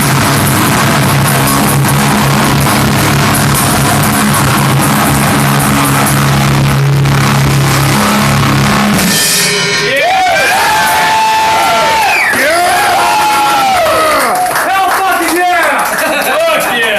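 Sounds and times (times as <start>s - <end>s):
cymbals washing: 0.0s - 13.5s
rock band playing live: 0.0s - 14.0s.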